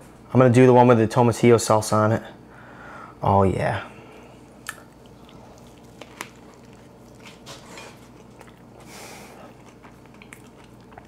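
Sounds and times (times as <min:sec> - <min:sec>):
steady low hum: 0:00.0 - 0:11.0
person chewing food: 0:04.3 - 0:11.0
small mouth clicks: 0:04.5 - 0:06.8.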